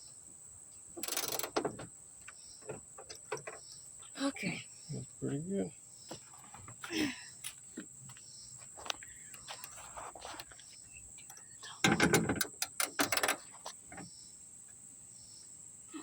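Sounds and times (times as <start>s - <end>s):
metal clicks and rattling: 1.0s - 2.4s, 11.3s - 14.0s.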